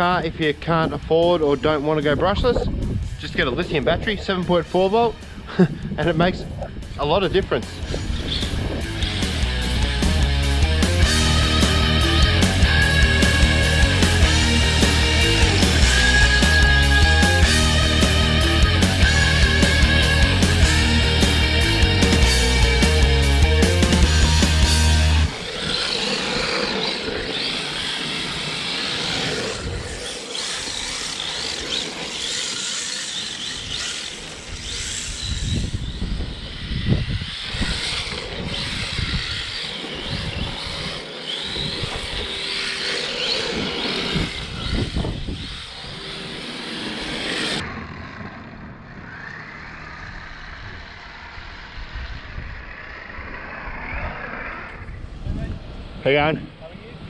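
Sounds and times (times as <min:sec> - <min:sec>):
rc car motor whining: 0:00.0 - 0:55.1
steady rushing noise: 0:00.0 - 0:57.0.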